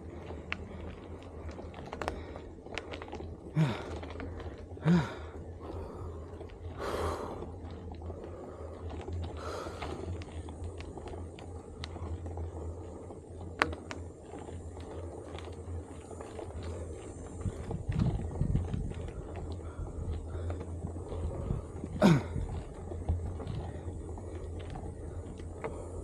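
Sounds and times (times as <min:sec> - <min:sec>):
faint ticks: 0:00.0 - 0:26.0
steady low rumble: 0:00.0 - 0:26.0
person breathing out hard: 0:03.5 - 0:07.5.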